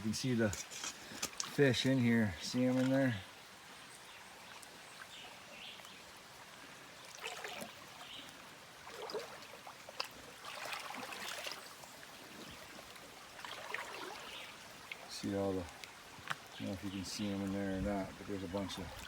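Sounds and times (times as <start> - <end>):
river trickling: 0.0 - 19.0.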